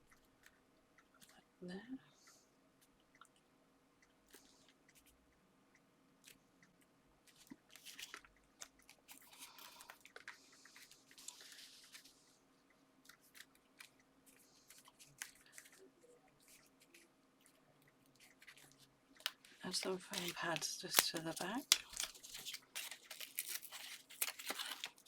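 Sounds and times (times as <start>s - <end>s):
small ticks and clicks: 0.0s - 25.0s
paper rustling: 7.3s - 12.2s, 18.4s - 25.0s.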